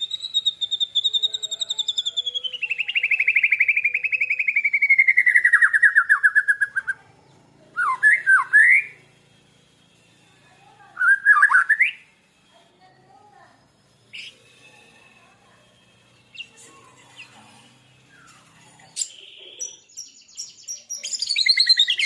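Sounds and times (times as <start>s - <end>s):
whistled bird phrases: 0.0s - 7.0s, 7.8s - 9.0s, 11.0s - 12.1s, 18.9s - 22.0s.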